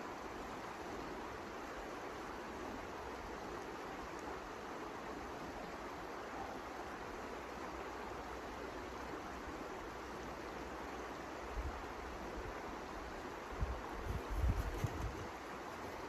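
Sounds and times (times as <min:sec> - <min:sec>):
gusts buffeting microphone: 0:13.6 - 0:16.0.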